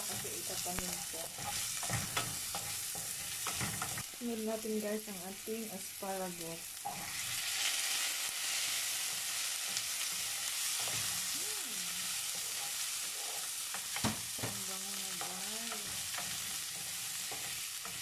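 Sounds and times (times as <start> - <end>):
asparagus sizzling in a pan: 0.0 - 18.0.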